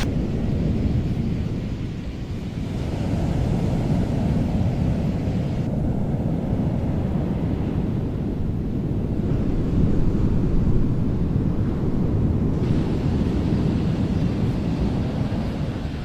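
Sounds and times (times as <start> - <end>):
high hiss: 12.6 - 16.0.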